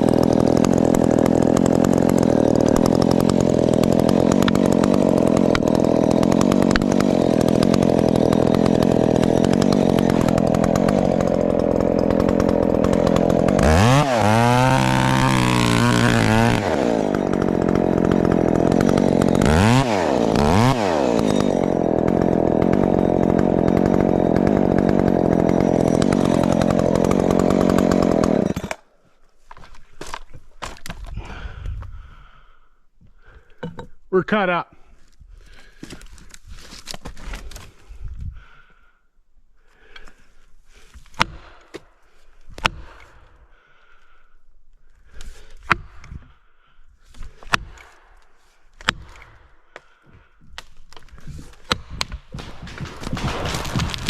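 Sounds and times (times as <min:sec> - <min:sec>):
chainsaw cutting wood: 0:00.0 - 0:31.7, 0:39.8 - 0:43.6, 0:45.0 - 0:46.4, 0:47.0 - 0:54.0.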